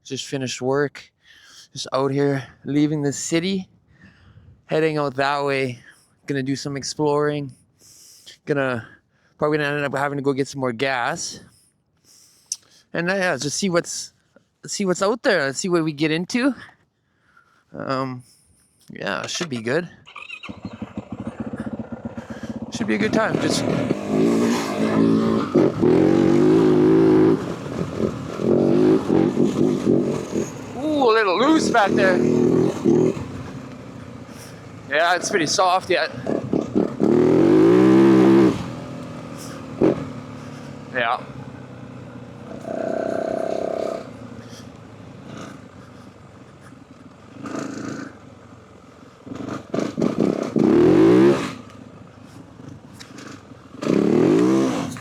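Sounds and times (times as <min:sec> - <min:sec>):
dirt bike engine under throttle: 0:19.2 - 0:55.0.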